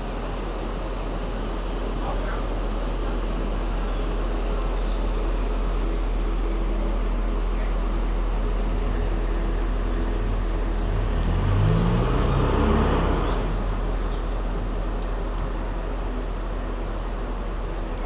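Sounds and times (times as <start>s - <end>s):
boat engine humming: 0.0s - 18.0s
rumbling rush: 10.9s - 18.0s.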